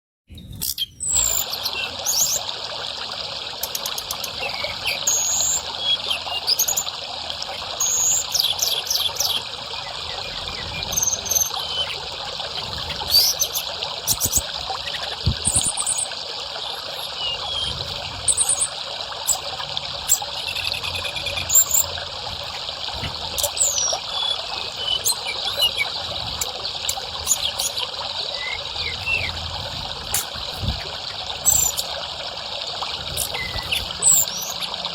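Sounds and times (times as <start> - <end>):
bird singing whistles and chirps: 0.3 - 2.4, 3.7 - 6.9, 7.7 - 12.0, 12.8 - 19.4, 20.1 - 22.0, 23.3 - 26.0, 26.9 - 29.4, 30.1 - 31.9, 33.1 - 34.8
water trickling: 0.3 - 34.9.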